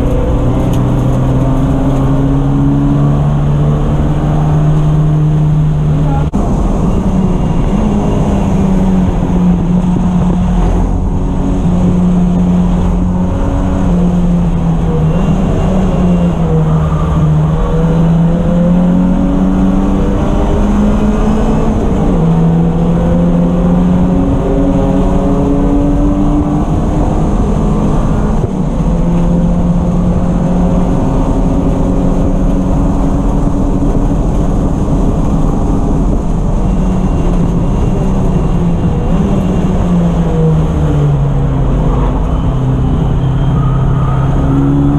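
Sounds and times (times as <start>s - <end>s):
race car engine revving: 0.0s - 44.9s.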